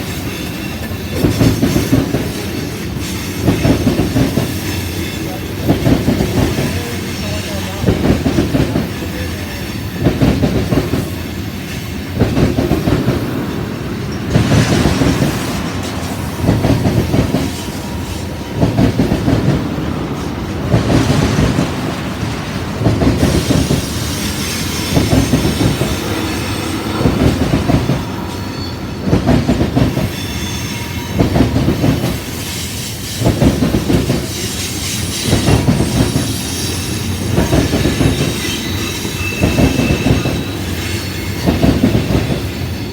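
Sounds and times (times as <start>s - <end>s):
train wheels clacking over rail joints: 0.0s - 42.9s
high wheel squeal: 12.8s - 19.2s, 23.2s - 33.3s, 34.2s - 42.9s.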